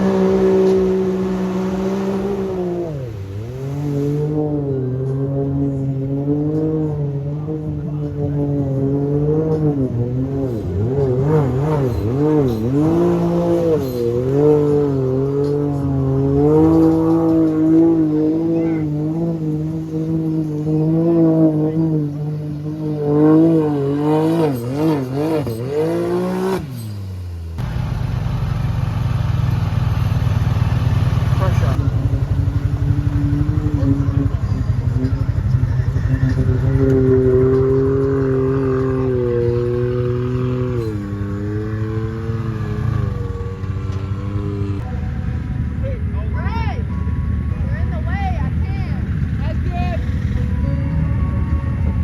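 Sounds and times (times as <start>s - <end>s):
atv engine revving: 0.0s - 52.0s.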